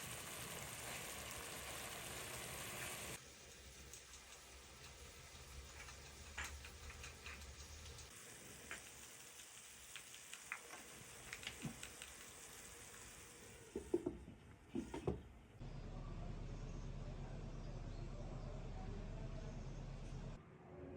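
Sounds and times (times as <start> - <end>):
cooking clicks and taps: 3.5 - 12.4, 13.7 - 15.2.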